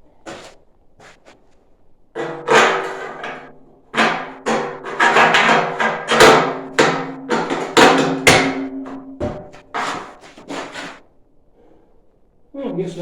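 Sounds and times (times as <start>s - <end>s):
hammer striking metal stove: 2.2s - 10.2s.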